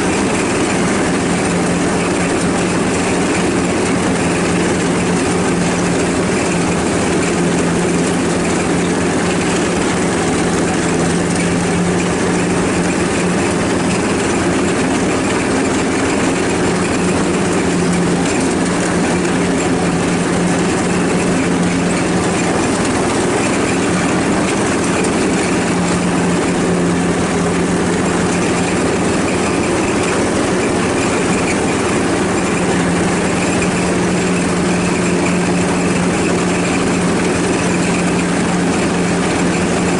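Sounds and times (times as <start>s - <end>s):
lawnmower engine drone: 0.0s - 39.9s.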